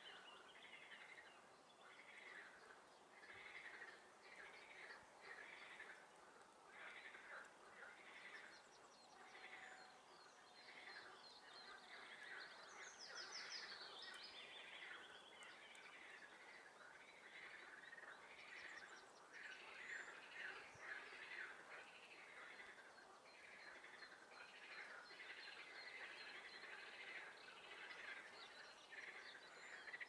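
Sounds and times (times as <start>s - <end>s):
frogs croaking: 2.0s - 6.0s, 15.9s - 30.0s.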